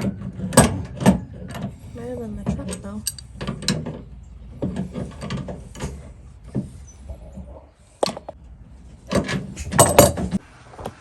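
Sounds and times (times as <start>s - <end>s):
metal tools clicking and knocking: 0.0s - 4.0s.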